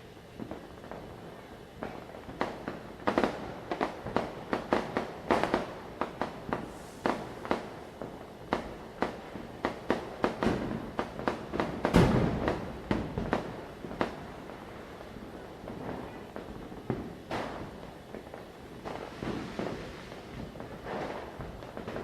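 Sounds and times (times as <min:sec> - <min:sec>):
firecrackers bursting: 0:00.0 - 0:22.0.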